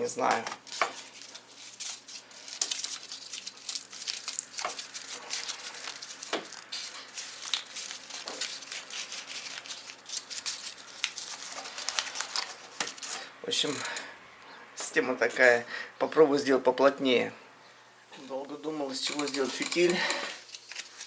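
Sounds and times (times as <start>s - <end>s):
cardboard crinkling by hand: 0.2s - 13.3s, 18.9s - 21.0s.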